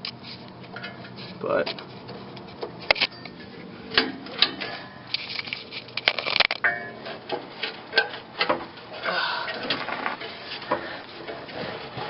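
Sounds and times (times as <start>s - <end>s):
ringing metal strike: 6.6s - 7.2s
metal knocks and clinks on pipe: 6.6s - 8.7s.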